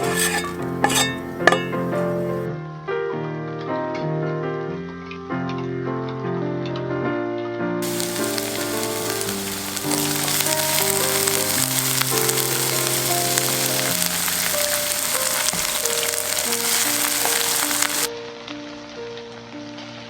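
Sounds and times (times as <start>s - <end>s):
food sizzling in hot oil: 0.0s - 2.5s, 7.8s - 18.1s.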